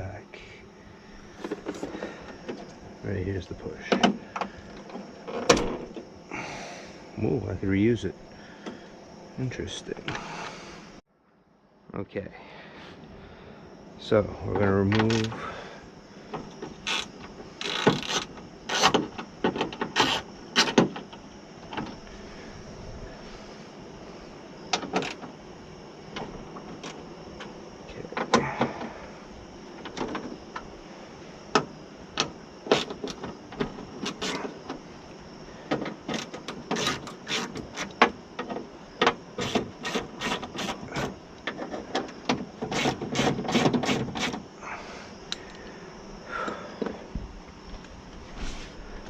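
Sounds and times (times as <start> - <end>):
hand tools on metal parts: 31.5 - 34.8, 35.7 - 44.4.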